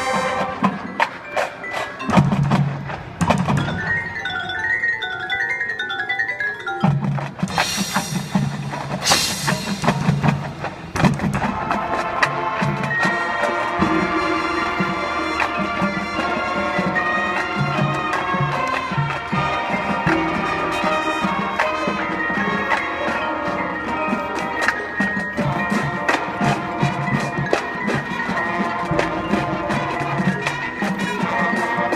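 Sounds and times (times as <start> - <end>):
drums: 0.0 - 5.2, 6.7 - 31.9
marching band playing: 0.0 - 31.9.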